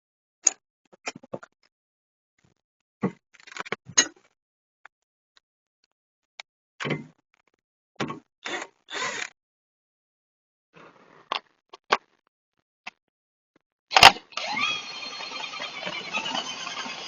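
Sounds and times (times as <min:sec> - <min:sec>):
motor spinning up: 0:13.9 - 0:17.0.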